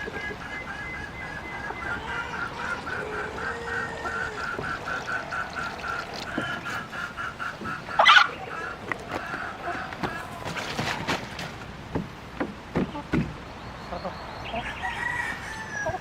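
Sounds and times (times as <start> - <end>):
poultry calling: 0.0 - 11.3.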